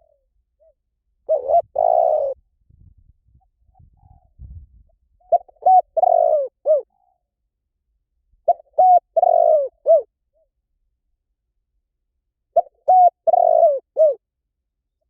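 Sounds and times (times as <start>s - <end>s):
dove cooing: 0.0s - 2.4s, 5.2s - 7.2s, 8.4s - 10.1s, 12.6s - 14.2s.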